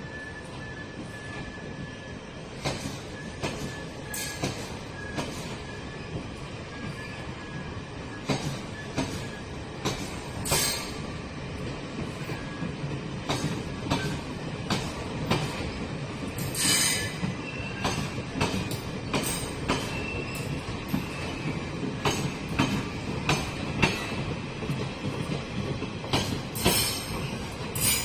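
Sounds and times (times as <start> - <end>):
train rumbling on rails: 0.0 - 28.0
wheel clacks over rail joints: 9.8 - 11.0, 16.3 - 28.0.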